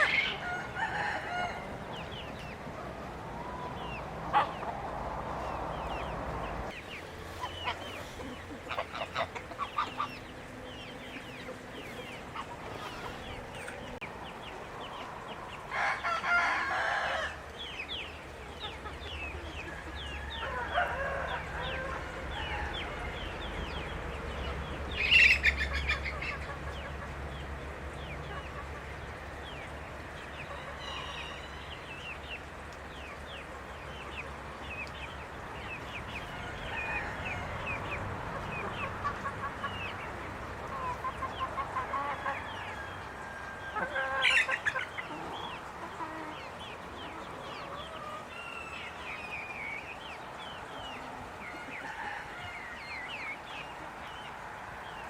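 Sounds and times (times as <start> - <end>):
poultry chirping and clucking: 0.0 - 55.0
loud poultry calls: 3.3 - 4.9, 7.3 - 14.0, 35.8 - 49.3.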